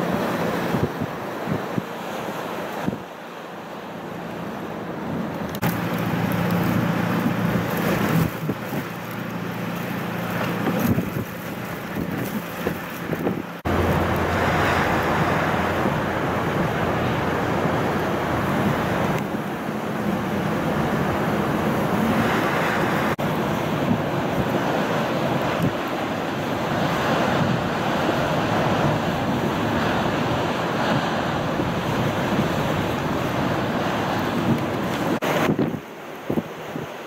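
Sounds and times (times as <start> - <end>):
gusting wind: 0.0 - 37.0
vehicle engine and road hum: 3.9 - 25.9.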